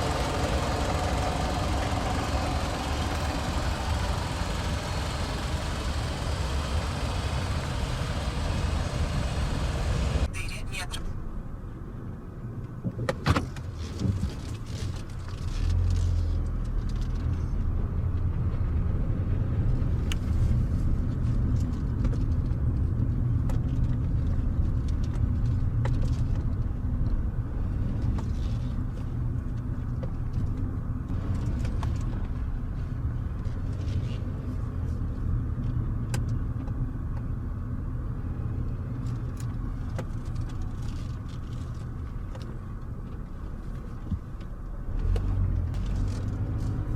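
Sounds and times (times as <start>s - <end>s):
low car rumble: 0.0s - 10.4s, 11.0s - 46.9s.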